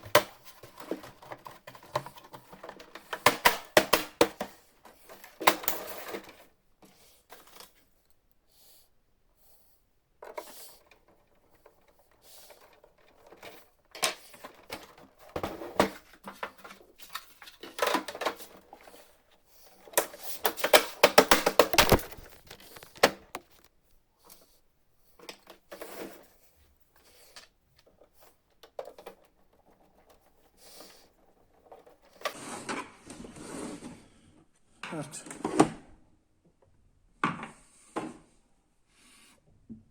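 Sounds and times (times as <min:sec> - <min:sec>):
plastic panels clicking and rattling: 0:00.0 - 0:06.5, 0:10.2 - 0:18.9, 0:19.8 - 0:23.7.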